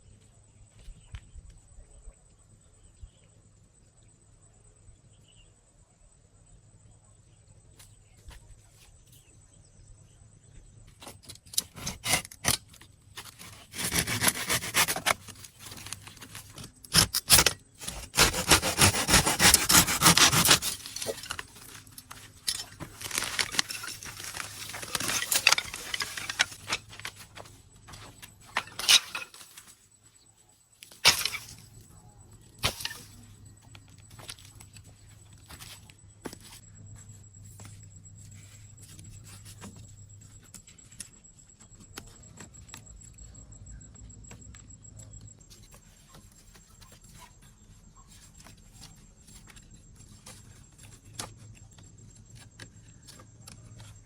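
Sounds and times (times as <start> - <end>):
scraping and rubbing: 11.6 - 29.7.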